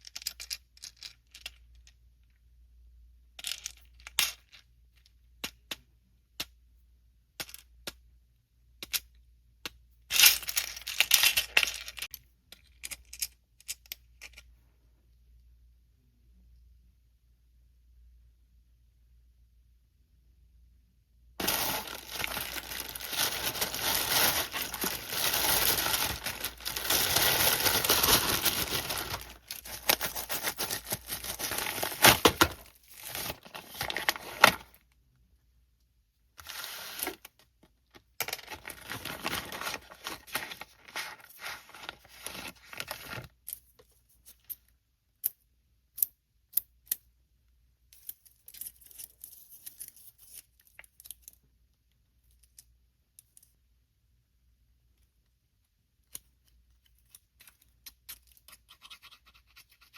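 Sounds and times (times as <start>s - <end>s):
packaging tearing and crinkling: 21.4s - 34.7s, 38.3s - 43.2s.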